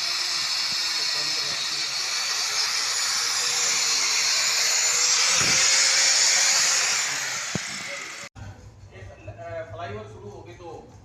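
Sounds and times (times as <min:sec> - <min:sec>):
loud hissing noise: 0:00.0 - 0:08.3.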